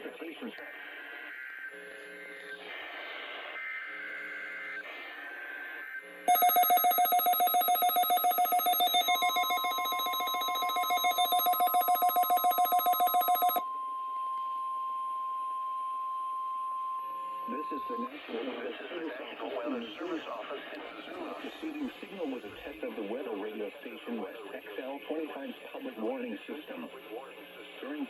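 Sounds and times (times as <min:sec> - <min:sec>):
radio voice speaking: 0:00.0 - 0:00.6, 0:17.4 - 0:28.0
pulsing ringing alert: 0:06.3 - 0:13.6
steady high warning tone: 0:06.3 - 0:14.4.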